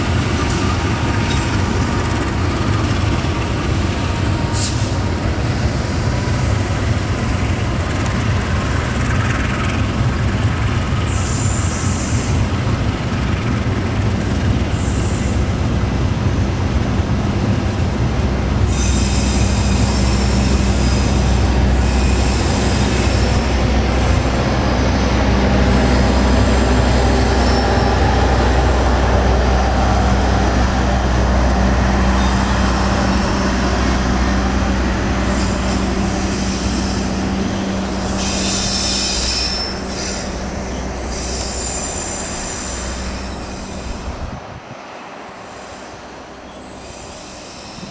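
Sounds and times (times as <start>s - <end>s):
train rumbling past: 0.0s - 47.9s
train wheels squealing: 11.1s - 12.4s, 18.7s - 23.5s, 25.7s - 28.5s, 35.3s - 44.1s, 45.4s - 47.9s.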